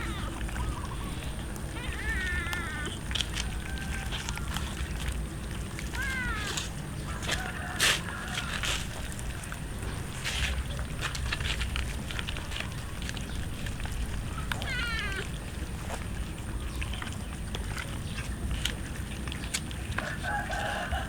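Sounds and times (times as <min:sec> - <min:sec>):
cat meowing: 0:00.0 - 0:04.7, 0:05.9 - 0:06.6, 0:14.4 - 0:15.4
low steady rumble: 0:00.0 - 0:21.0
rooster crowing: 0:03.4 - 0:04.5, 0:07.1 - 0:09.0, 0:20.0 - 0:21.0.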